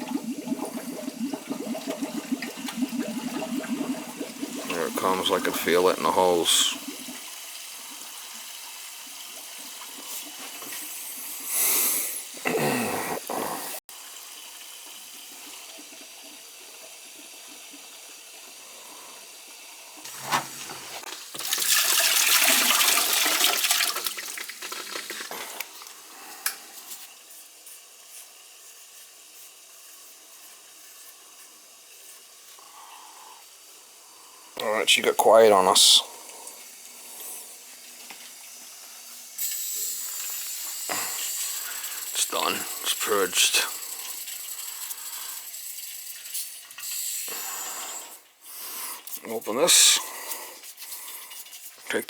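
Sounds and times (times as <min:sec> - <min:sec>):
water and air rushing through pipes: 0:00.0 - 0:12.4.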